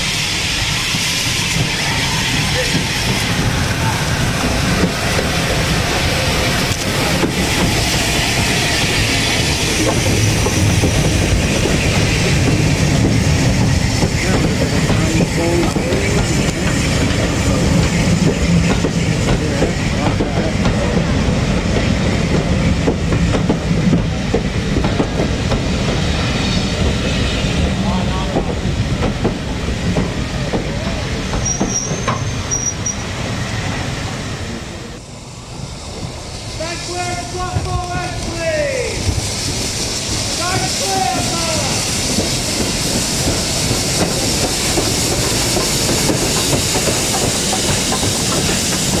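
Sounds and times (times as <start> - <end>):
steam hiss: 0.0 - 49.0
train rumble: 0.0 - 49.0
train wheels clicking over rail joints: 0.1 - 34.2, 35.4 - 49.0
high wheel squeals: 30.8 - 33.4.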